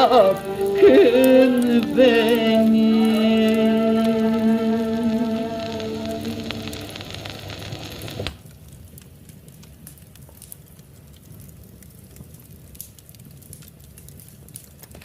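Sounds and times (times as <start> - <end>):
music: 0.0 - 8.2
fire crackling in a fireplace: 0.0 - 15.0.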